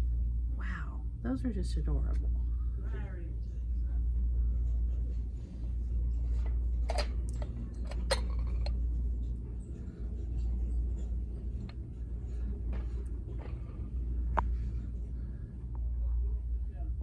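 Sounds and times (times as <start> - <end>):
steady low rumble: 0.0 - 17.0
sharp handling clicks and clinks: 6.7 - 13.7.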